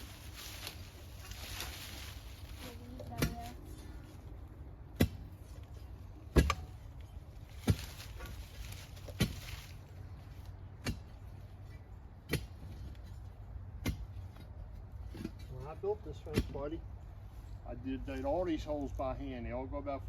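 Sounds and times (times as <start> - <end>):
post hole digger striking rock: 4.9 - 5.4, 6.3 - 6.8, 7.6 - 9.6, 10.8 - 11.2, 12.2 - 12.8, 13.8 - 14.5, 16.1 - 16.7.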